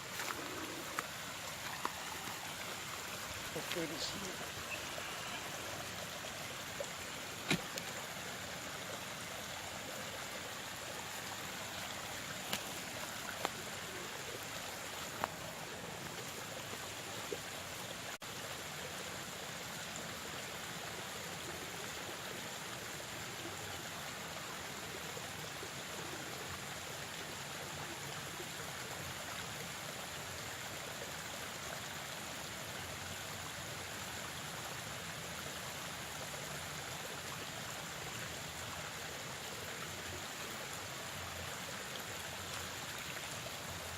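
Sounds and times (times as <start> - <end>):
stream water rushing: 0.0 - 43.9
faint sharp clicks: 12.4 - 13.6.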